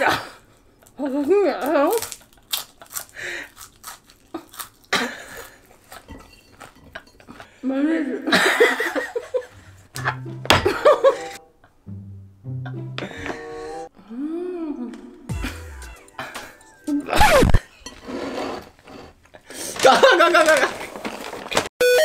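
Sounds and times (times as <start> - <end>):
crunching and chewing insect: 0.8 - 6.1
person laughing: 14.4 - 17.6.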